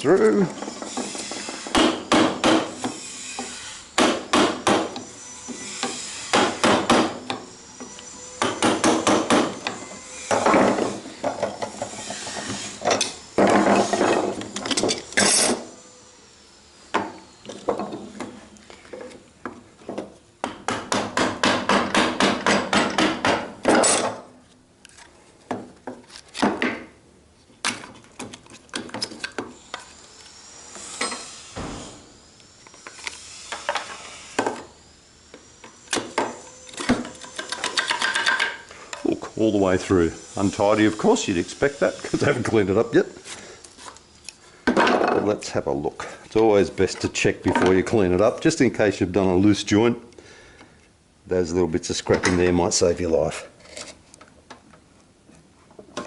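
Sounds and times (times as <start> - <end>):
mallet striking chisel into wood: 1.7 - 2.7, 4.0 - 5.0, 5.8 - 7.4, 20.4 - 24.1.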